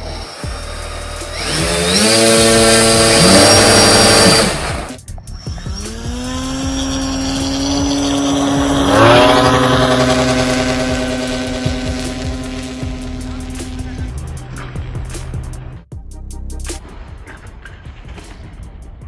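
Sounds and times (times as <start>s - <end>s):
rc airplane electric motors: 0.0s - 14.2s.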